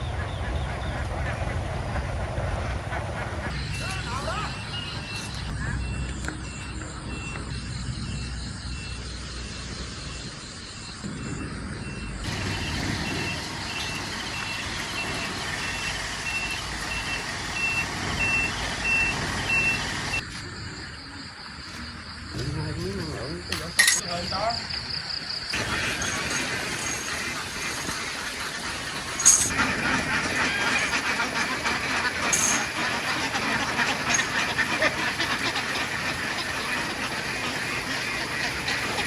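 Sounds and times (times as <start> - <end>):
wavering calls or voices: 3.5 - 5.9
truck reversing alarm beeps: 3.5 - 20.3, 29.2 - 34.8
engine running: 11.9 - 20.2, 25.5 - 39.0.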